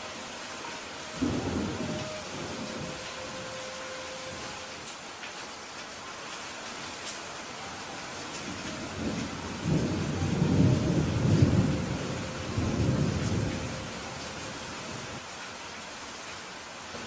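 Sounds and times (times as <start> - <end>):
steady rain falling: 0.0 - 17.0
thunder rumbling: 1.2 - 4.6, 8.4 - 15.2.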